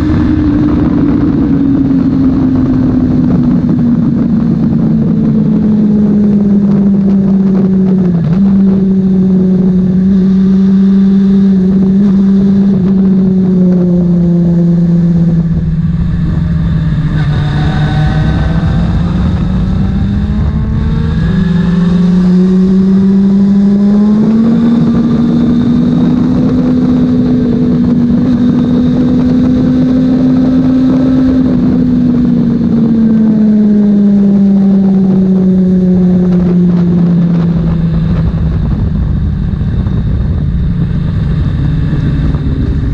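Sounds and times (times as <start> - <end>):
racing motorcycle engines: 0.0 - 42.9
motorcycles passing by: 14.6 - 31.5.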